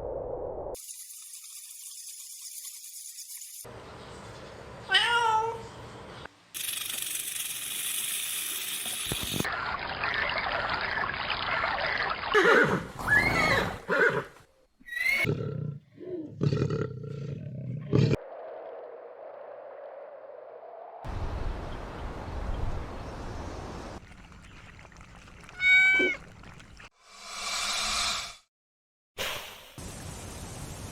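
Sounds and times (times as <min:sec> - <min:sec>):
cat crying: 0:25.6 - 0:26.2.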